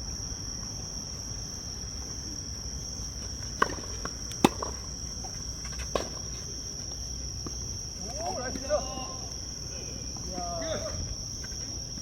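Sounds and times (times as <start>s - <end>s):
tennis ball struck: 3.6s - 4.8s.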